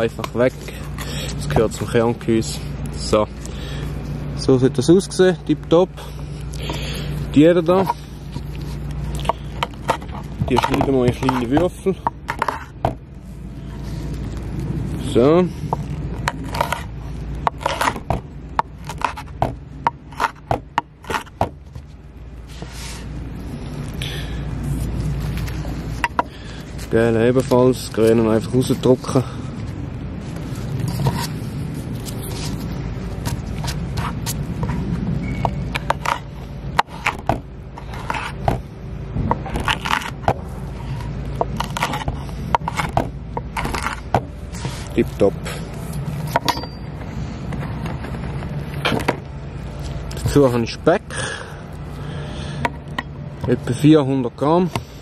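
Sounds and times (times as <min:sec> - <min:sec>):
steady low rumble: 0:00.0 - 0:55.0
knife scraping board: 0:07.7 - 0:13.0, 0:15.7 - 0:18.2, 0:18.8 - 0:21.9, 0:30.8 - 0:31.4, 0:32.0 - 0:38.6, 0:39.3 - 0:45.6
knife chopping on wooden board: 0:09.2 - 0:13.0, 0:17.5 - 0:21.6.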